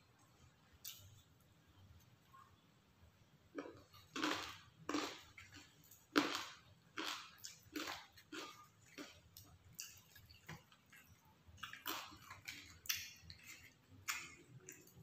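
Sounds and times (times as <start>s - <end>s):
skewers on metal tray: 3.5s - 15.0s
chewing with wet smacks: 3.6s - 15.0s.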